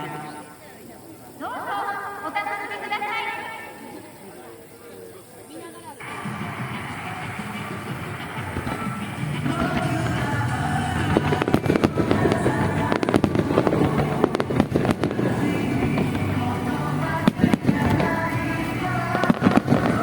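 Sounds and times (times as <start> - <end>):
fireworks bursting and crackling: 5.9 - 20.0
music: 6.0 - 20.0.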